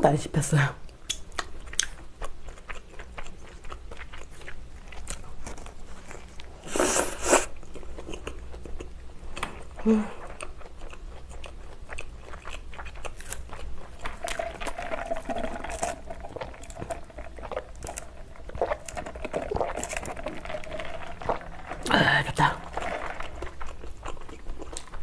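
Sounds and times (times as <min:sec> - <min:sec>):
wet chewing: 0:01.0 - 0:25.0.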